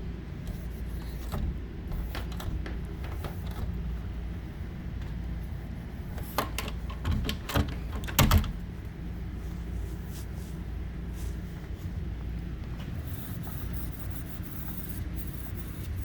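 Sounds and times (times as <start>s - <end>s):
steady low hum: 0.0s - 16.0s
knocks and clatters of handling: 6.2s - 8.6s.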